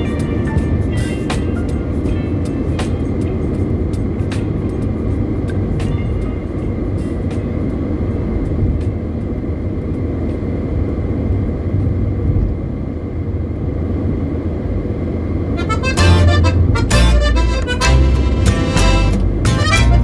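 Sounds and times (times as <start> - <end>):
music: 0.0 - 8.6, 15.6 - 20.0
road and engine rumble: 13.7 - 20.0.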